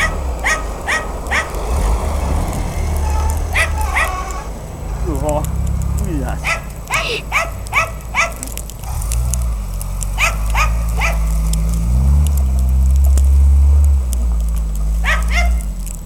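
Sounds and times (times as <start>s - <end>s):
dog barking: 0.0s - 1.9s, 3.0s - 4.5s, 6.2s - 8.6s, 10.2s - 11.4s, 15.0s - 15.7s
car engine revving in snow: 0.0s - 16.0s.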